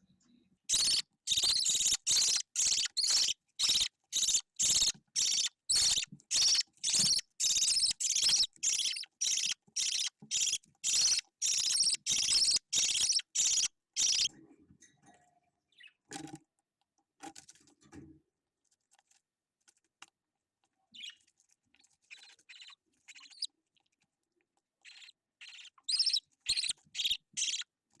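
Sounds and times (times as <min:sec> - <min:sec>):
budgerigar chick begging calls: 0:00.7 - 0:14.3, 0:24.9 - 0:27.6.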